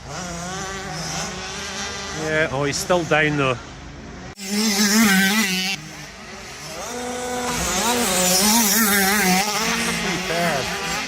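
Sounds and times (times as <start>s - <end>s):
motocross bikes revving: 0.0s - 11.0s.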